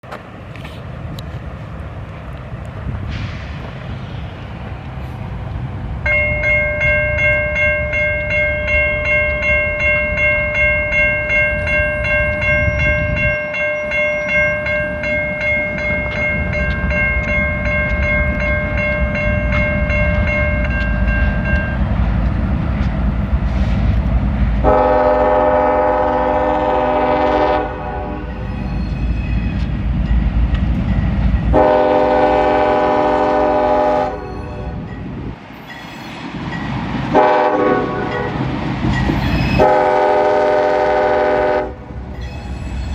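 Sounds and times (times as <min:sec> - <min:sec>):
train rumbling past: 0:00.0 - 0:42.9
crossing bell ringing: 0:06.0 - 0:23.3, 0:24.6 - 0:42.9
locomotive horn blast: 0:24.6 - 0:28.4, 0:31.5 - 0:34.8, 0:37.1 - 0:38.4, 0:39.5 - 0:41.9.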